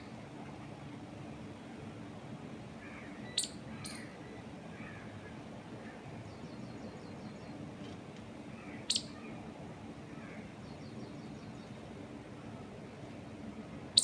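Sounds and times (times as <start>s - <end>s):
low background noise: 0.0s - 14.0s
faint bird trills and calls: 2.8s - 7.6s, 8.6s - 9.5s
bird chirping sharply: 8.9s - 9.2s.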